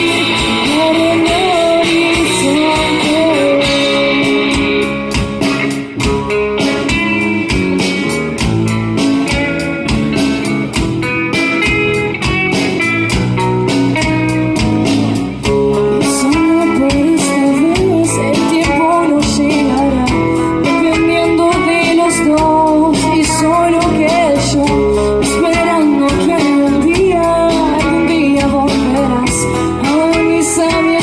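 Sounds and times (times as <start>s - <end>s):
bass guitar: 0.0s - 31.0s
drums hitting: 0.0s - 31.0s
electric guitar with bending notes: 0.0s - 31.0s.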